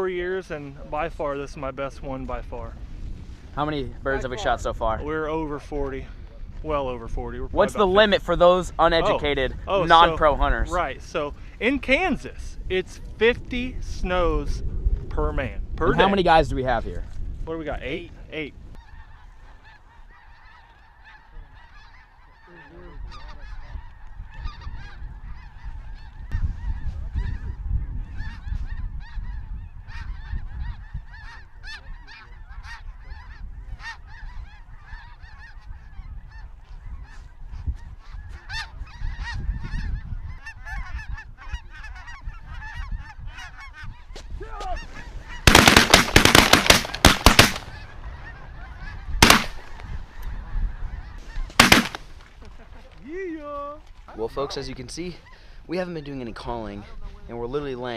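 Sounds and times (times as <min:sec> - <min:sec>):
geese honking and yelping: 0:17.8 - 0:57.9
shotgun blasts: 0:45.5 - 0:47.8, 0:49.2 - 0:49.8, 0:51.5 - 0:52.2.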